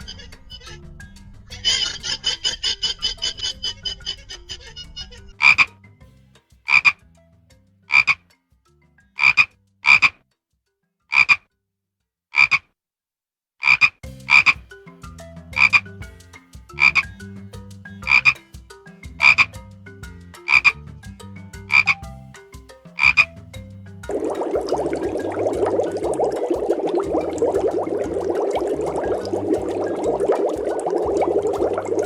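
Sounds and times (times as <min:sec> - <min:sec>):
animal calling sharply: 0:09.2 - 0:10.2, 0:11.1 - 0:11.4, 0:12.4 - 0:12.6, 0:13.6 - 0:14.6.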